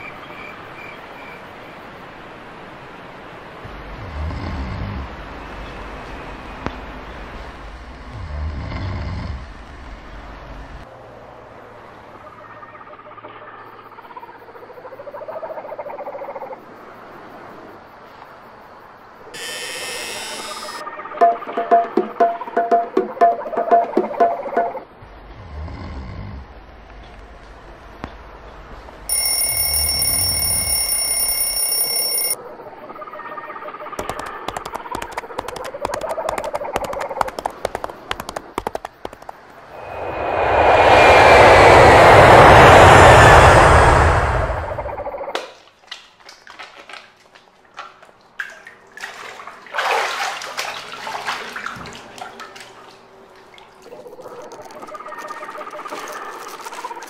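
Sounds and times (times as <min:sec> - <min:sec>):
shrill electronic alarm tone: 0:19.4 - 0:20.8, 0:29.1 - 0:32.4
water splashing and dripping: 0:34.0 - 0:39.7, 0:45.3 - 0:57.0.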